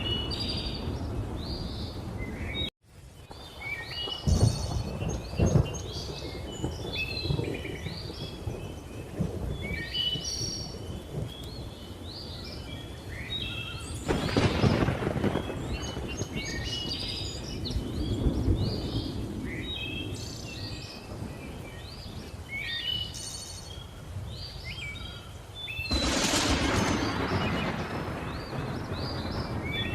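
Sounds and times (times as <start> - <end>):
thunder rumbling and cracking: 3.3 - 12.4, 14.0 - 22.3, 25.9 - 29.9
birds chirping and whistling: 3.4 - 29.9.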